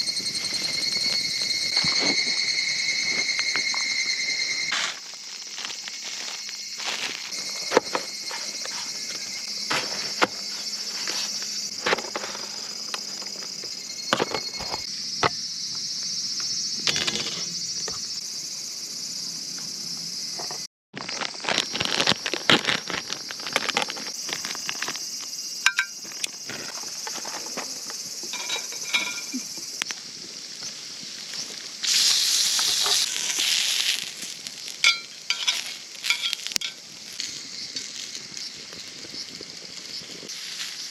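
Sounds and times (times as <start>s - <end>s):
insects droning: 0.0s - 40.9s
sharp crackles and clicks: 21.0s - 28.0s, 30.6s - 40.9s.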